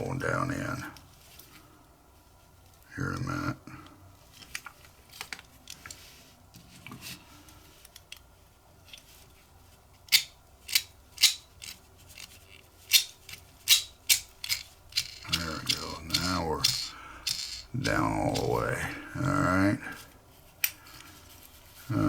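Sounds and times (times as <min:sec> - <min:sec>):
metallic screw scraping strokes: 0:10.1 - 0:18.6.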